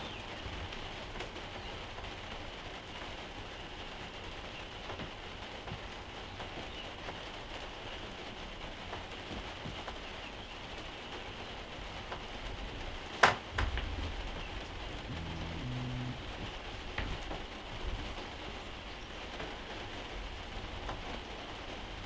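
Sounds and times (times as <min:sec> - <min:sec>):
steady rain falling: 0:00.0 - 0:22.0
low rumble: 0:13.5 - 0:17.0.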